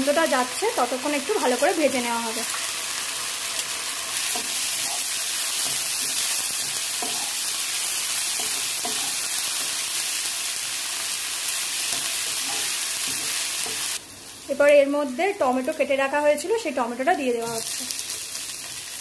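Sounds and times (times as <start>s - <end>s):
onions sizzling in hot oil: 0.0s - 19.0s
wooden spatula scraping a wok: 3.7s - 7.5s, 8.3s - 9.8s.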